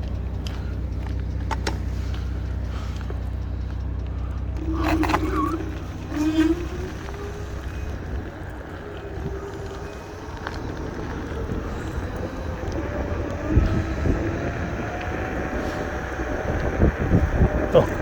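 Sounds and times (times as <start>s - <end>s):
electric scooter motor whine: 0.0s - 18.0s
road rumble: 0.0s - 18.0s
wind rush: 6.2s - 18.0s.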